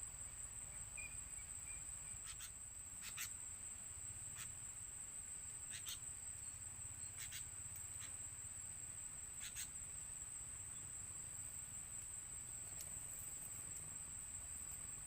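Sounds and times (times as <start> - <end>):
high-pitched insect trill: 0.0 - 15.0.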